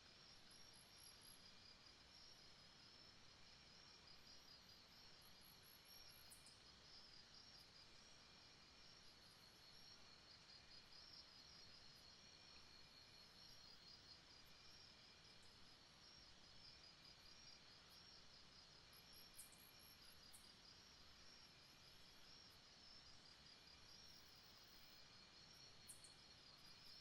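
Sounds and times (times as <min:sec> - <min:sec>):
insects trilling: 0:09.1 - 0:27.0.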